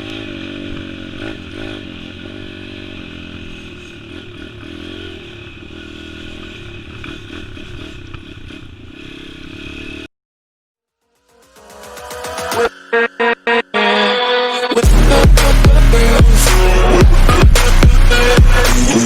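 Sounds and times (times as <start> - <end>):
small motorbike engine running: 0.0 - 10.1, 14.8 - 19.0.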